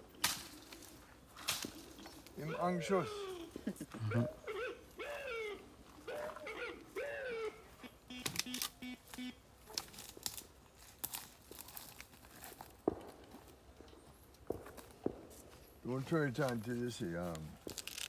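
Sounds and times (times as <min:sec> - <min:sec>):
animal crying: 0:02.4 - 0:08.3
rustling: 0:17.2 - 0:18.0.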